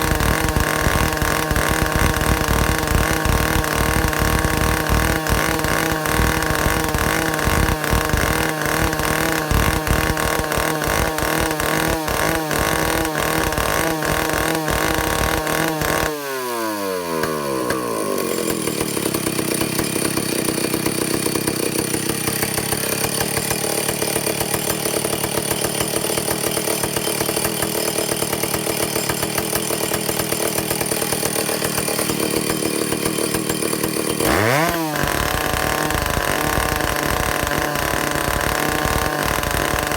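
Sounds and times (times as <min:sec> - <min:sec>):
chainsaw engine running: 0:00.0 - 0:39.9.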